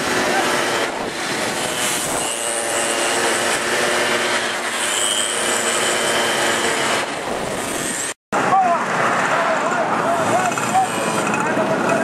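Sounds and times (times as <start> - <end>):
motorcycle engines at high revs: 0.0 - 8.2.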